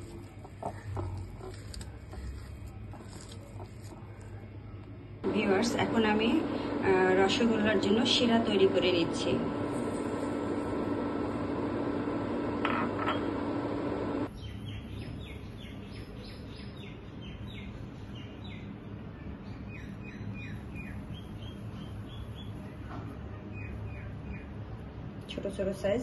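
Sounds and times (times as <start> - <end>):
steady hum: 0.0 - 14.9.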